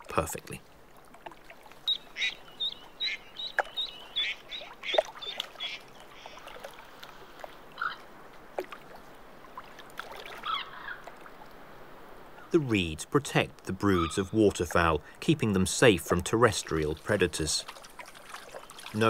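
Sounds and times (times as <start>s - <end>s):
water lapping at shore: 0.0s - 19.0s
bird chirping: 1.8s - 6.3s
lower bird calls: 1.8s - 8.1s, 10.3s - 11.2s, 13.9s - 14.4s.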